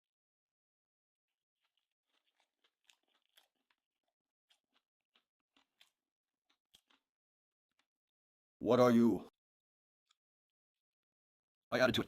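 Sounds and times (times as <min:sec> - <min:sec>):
chewing with crunches: 0:01.3 - 0:08.0.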